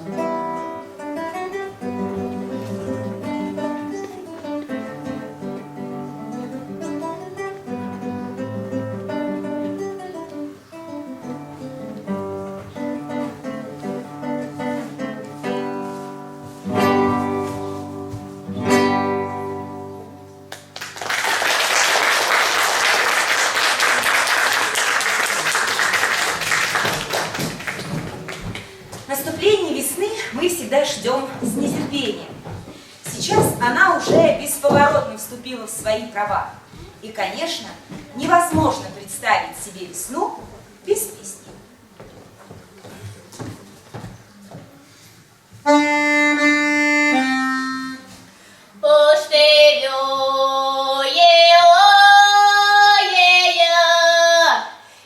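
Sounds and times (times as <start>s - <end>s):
acoustic guitar melody: 0.0s - 21.0s, 22.5s - 42.0s, 42.7s - 48.6s
audience applause: 20.5s - 28.8s.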